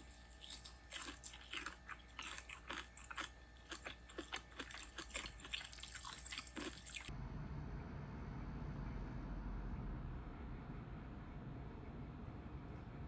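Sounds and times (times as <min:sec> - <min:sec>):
person chewing crunchy food: 0:00.0 - 0:07.1.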